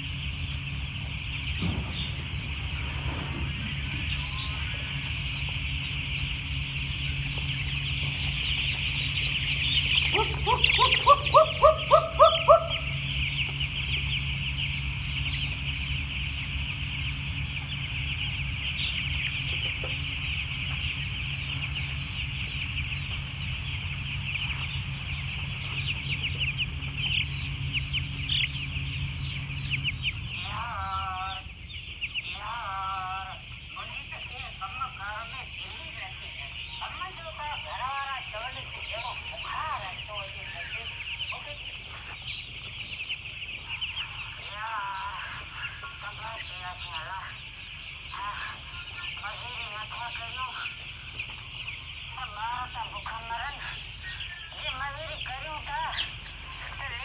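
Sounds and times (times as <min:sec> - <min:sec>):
chicks peeping: 0:00.0 - 0:57.0
steady low hum: 0:00.0 - 0:57.0
short wavering calls: 0:04.0 - 0:15.7.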